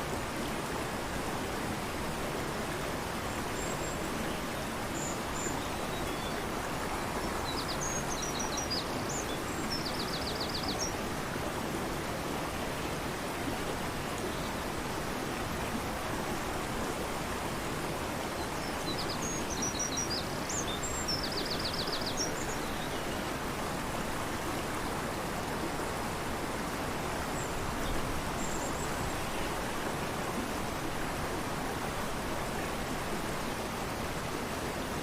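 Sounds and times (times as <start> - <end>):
river rushing: 0.0 - 35.0.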